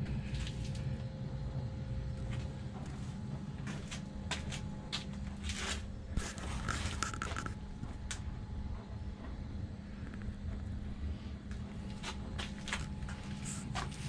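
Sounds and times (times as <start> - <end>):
clicks and scrapes: 5.4 - 7.6.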